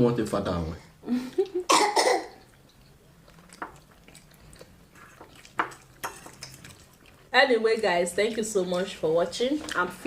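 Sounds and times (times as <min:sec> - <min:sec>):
soft eating clicks: 0:02.4 - 0:09.0.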